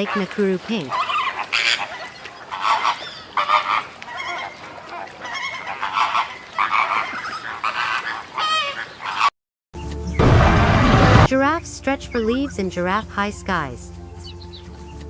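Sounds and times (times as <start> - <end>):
flamingos honking: 0.0 - 9.3.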